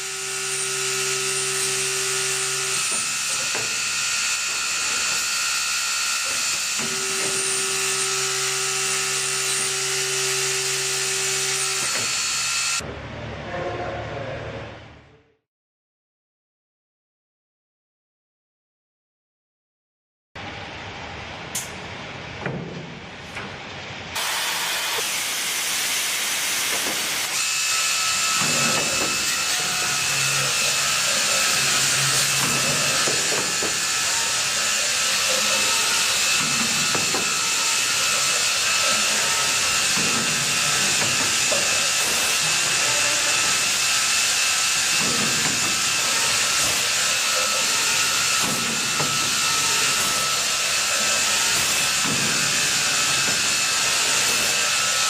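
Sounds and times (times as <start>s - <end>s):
high machine whine: 0.0s - 13.9s, 23.6s - 55.0s
machine rushing hiss: 24.2s - 27.3s.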